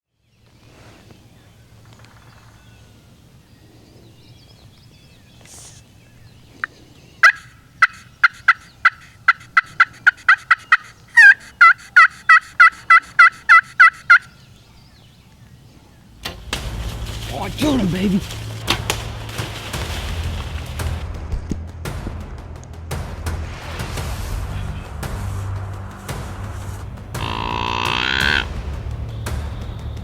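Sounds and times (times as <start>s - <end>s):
turkey yelps: 7.2s - 14.3s, 27.2s - 28.5s.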